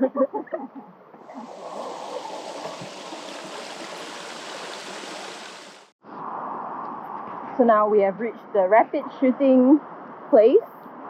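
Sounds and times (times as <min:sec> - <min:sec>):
flowing water rushing: 0:01.2 - 0:06.0.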